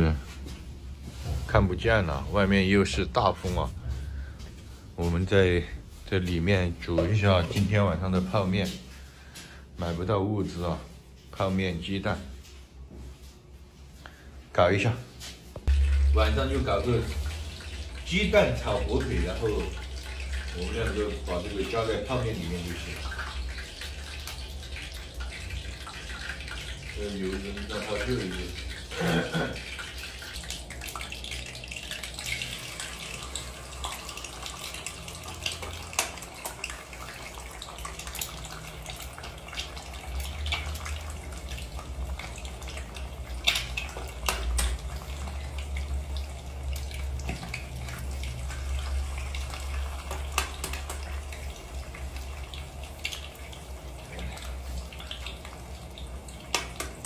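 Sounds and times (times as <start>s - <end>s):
steady watery hiss: 15.6s - 25.3s
low rumble: 15.7s - 18.6s.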